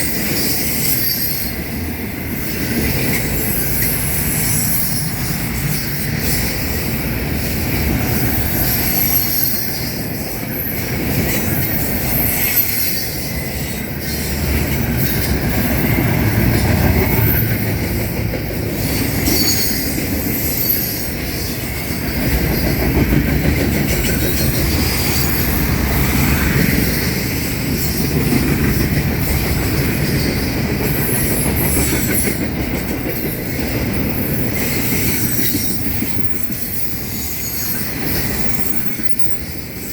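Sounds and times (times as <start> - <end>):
wheel squeal: 0.0 - 1.7, 7.4 - 17.9, 18.8 - 28.1, 34.0 - 39.9
freight train rumbling: 0.0 - 39.9
wheels clacking over rail joints: 0.0 - 39.9.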